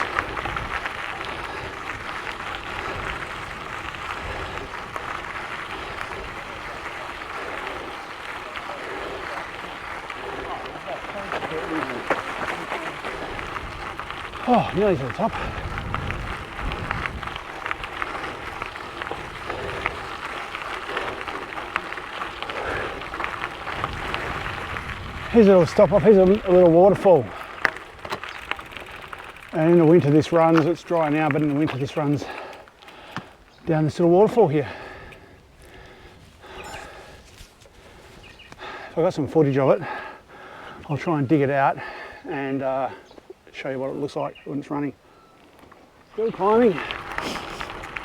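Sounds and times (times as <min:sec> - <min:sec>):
wind on microphone: 0:00.0 - 0:08.3, 0:13.0 - 0:21.8, 0:22.4 - 0:26.6
bike tyres rolling on gravel: 0:00.0 - 0:48.0.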